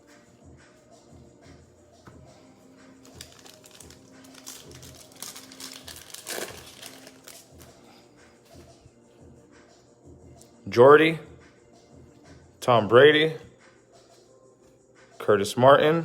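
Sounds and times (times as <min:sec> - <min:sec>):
background music with beat: 0:00.0 - 0:16.0
plastic wrapper crinkling: 0:03.0 - 0:07.7.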